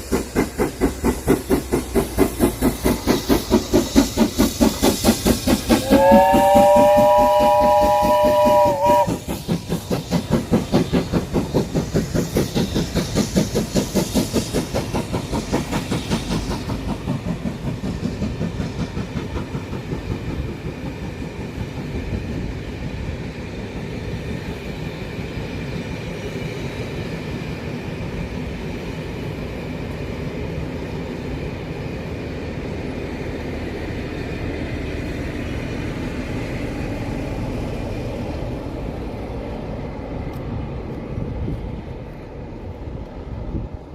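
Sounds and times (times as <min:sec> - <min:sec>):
steam locomotive exhaust beats: 0:00.0 - 0:43.9
steam whistle chord: 0:05.8 - 0:09.2.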